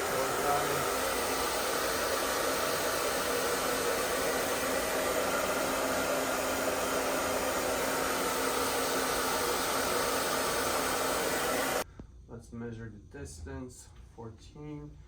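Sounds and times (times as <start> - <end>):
blower machine whooshing: 0.0 - 11.8.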